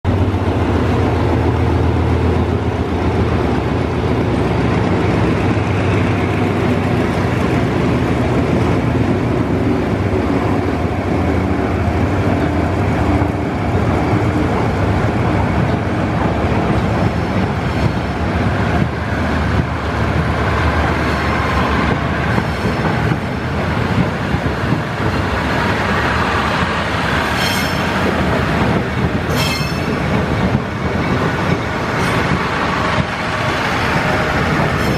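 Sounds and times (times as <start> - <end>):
diesel locomotive engine droning: 0.1 - 34.9
high wheel squeals: 27.3 - 28.0, 29.3 - 30.1.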